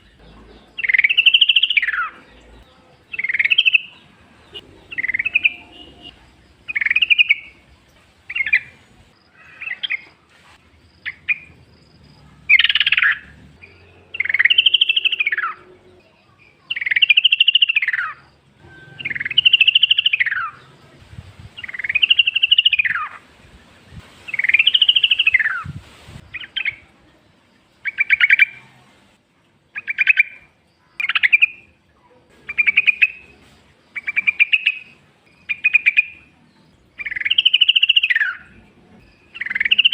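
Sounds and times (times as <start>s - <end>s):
bulbul calling: 0.0s - 7.6s, 12.5s - 15.7s, 16.6s - 20.8s, 21.5s - 23.2s, 24.3s - 26.9s, 29.8s - 31.8s, 32.4s - 33.3s, 34.0s - 36.3s, 37.0s - 39.9s.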